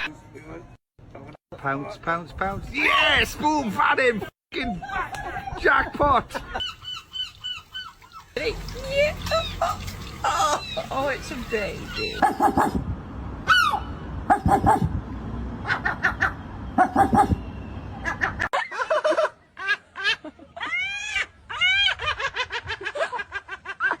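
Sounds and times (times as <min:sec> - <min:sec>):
seagulls squawking: 0:06.4 - 0:08.3, 0:09.4 - 0:12.8.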